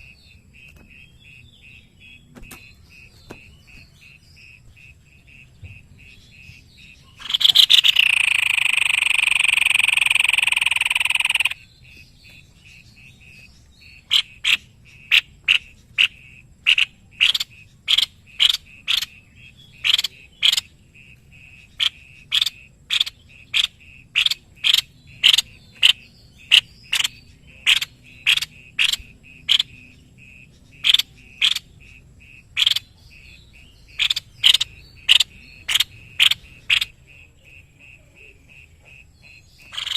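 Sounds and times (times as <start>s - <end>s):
loud buzzy animal call: 7.2s - 11.6s.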